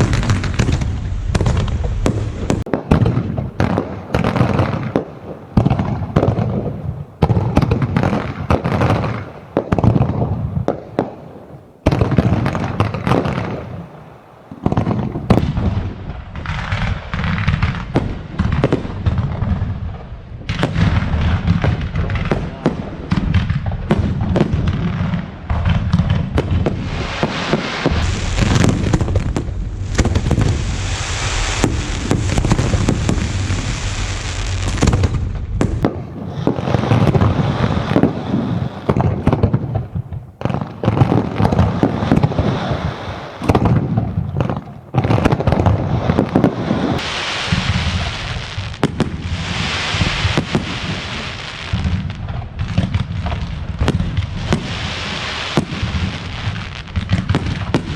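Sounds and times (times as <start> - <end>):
fireworks crackling hiss: 0.0 - 5.4, 26.2 - 57.9
fireworks bangs and booms: 0.0 - 57.9.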